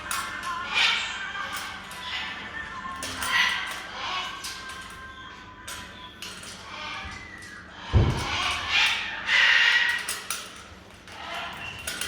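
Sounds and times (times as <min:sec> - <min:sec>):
macaw squawking: 0:07.9 - 0:10.0.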